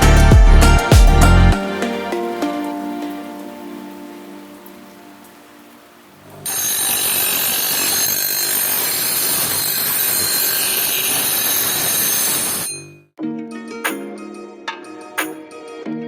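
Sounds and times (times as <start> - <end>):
tool grinding axe with high whine: 6.5 - 12.8.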